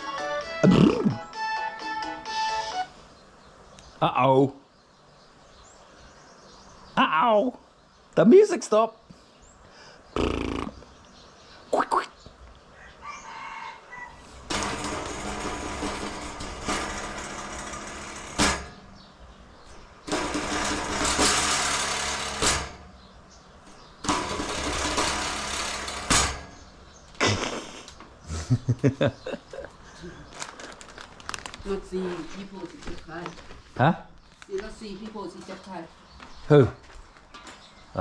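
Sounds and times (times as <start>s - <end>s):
brush cutter engine starting and stalling: 20.0s - 22.7s, 24.0s - 26.2s.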